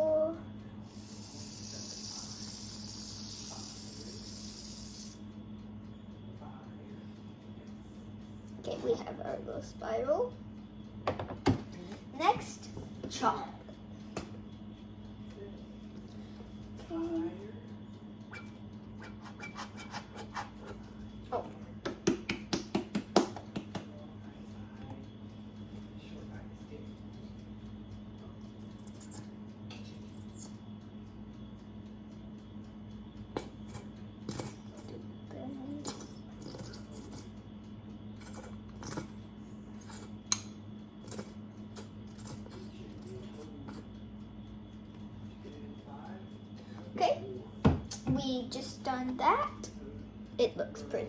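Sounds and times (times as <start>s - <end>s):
steady low hum: 0.0s - 51.0s
squeeze bottle sputtering: 0.9s - 5.2s.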